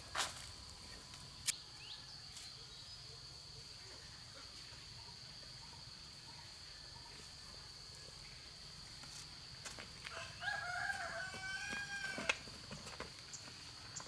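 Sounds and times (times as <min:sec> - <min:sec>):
rooster crowing: 0:10.1 - 0:12.5.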